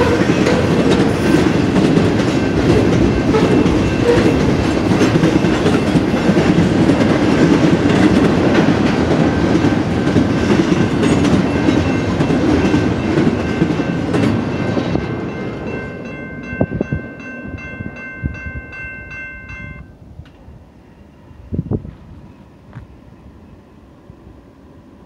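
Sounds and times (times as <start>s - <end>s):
crossing bell ringing: 0.0s - 7.0s, 10.5s - 20.0s
train wheels rumbling and clattering: 0.0s - 18.5s.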